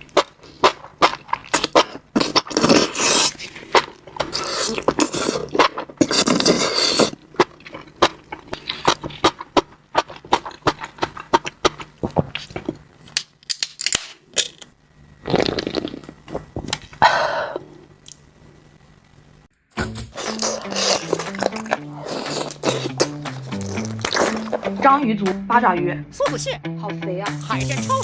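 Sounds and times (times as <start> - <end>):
wet chewing and biting: 0.0 - 12.9, 19.8 - 25.0
sharp clicks and crunches: 0.0 - 17.0, 20.0 - 24.8.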